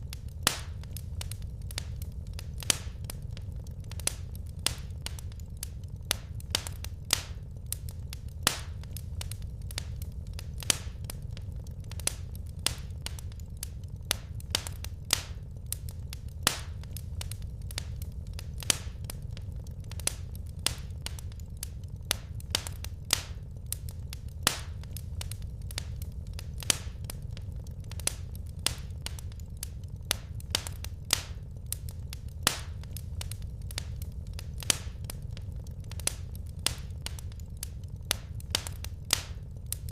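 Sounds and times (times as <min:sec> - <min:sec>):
low rumble of burning logs: 0:00.0 - 0:39.9
wood fire crackling and popping: 0:00.0 - 0:39.9.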